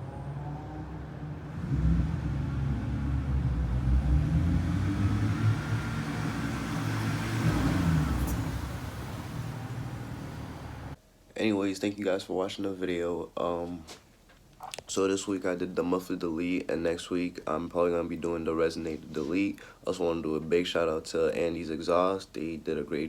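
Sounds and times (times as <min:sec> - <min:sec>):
car exhaust driving past: 0:00.0 - 0:11.0.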